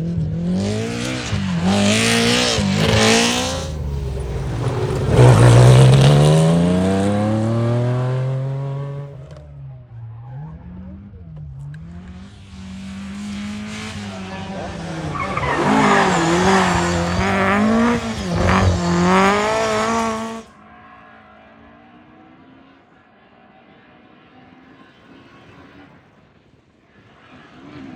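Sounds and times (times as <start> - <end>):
rally car engine revving: 0.0 - 20.6.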